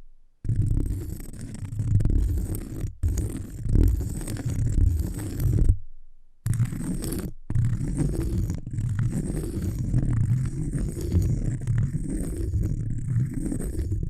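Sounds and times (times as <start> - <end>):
scratching on cork: 0.4 - 5.8, 6.4 - 14.0.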